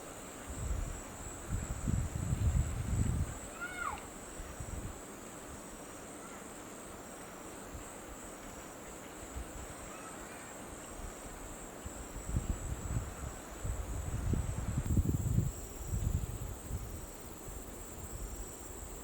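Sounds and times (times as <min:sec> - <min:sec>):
faint bird chirps: 0:09.8 - 0:10.6.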